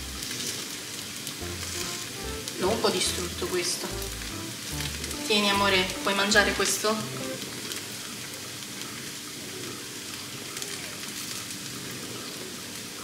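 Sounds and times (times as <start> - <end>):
fritters sizzling in oil: 0.0 - 9.2.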